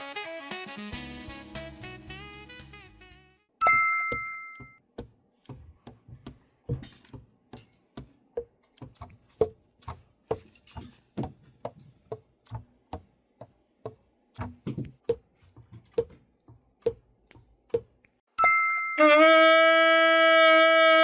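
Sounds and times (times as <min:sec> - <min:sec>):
ringing metallic clink: 0:03.6 - 0:04.8, 0:18.4 - 0:19.0.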